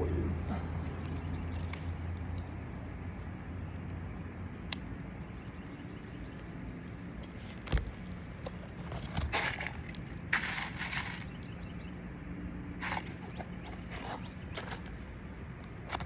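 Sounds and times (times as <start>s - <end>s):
gritty scraping strokes: 8.8s - 11.4s, 12.7s - 15.0s.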